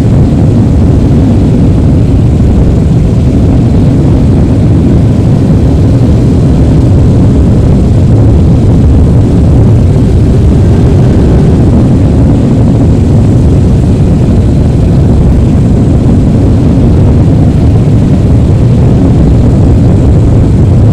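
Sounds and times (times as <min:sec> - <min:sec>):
jet engine rumble: 0:00.0 - 0:20.9.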